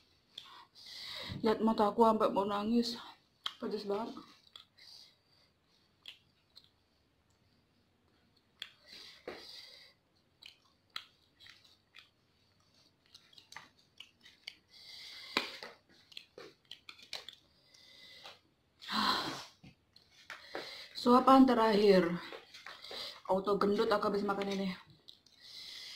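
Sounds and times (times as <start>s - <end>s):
chewing and wet mouth sounds: 3.2s - 18.8s, 19.7s - 20.9s, 24.2s - 25.9s.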